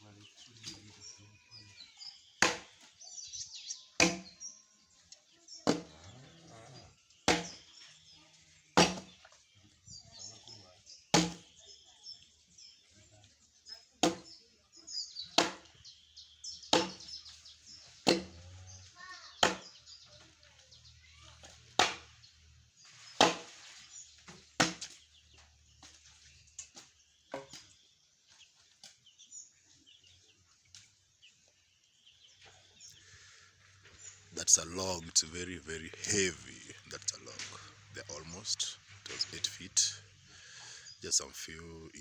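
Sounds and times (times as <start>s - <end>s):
tool striking wood: 2.4s - 2.7s, 4.0s - 4.3s, 7.3s - 7.6s, 8.8s - 9.1s, 11.2s - 11.4s, 16.8s - 17.0s, 18.0s - 18.4s, 23.2s - 23.5s.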